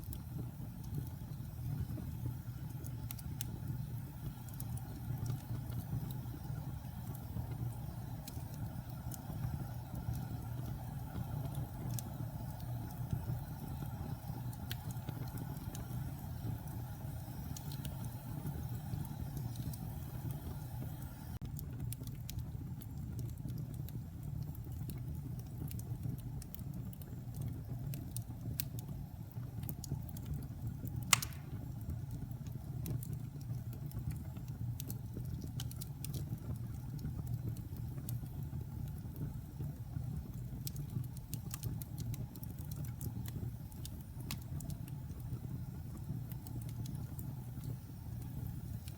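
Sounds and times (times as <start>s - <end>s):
fire crackling: 0.0s - 48.9s
low rumble of flames: 0.0s - 48.9s
loud pop of burning log: 31.1s - 31.8s.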